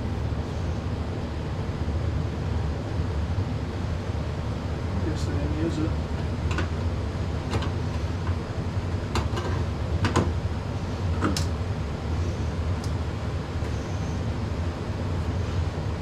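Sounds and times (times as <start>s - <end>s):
air conditioner unit humming: 0.0s - 16.0s
clicks and knocks of tools: 7.5s - 7.8s, 9.1s - 10.3s, 11.2s - 11.5s.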